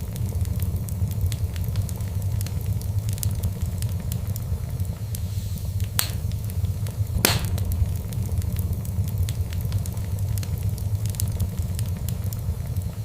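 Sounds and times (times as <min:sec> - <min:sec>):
wood fire crackling: 0:00.0 - 0:13.0
loud pops from fire: 0:05.7 - 0:12.0.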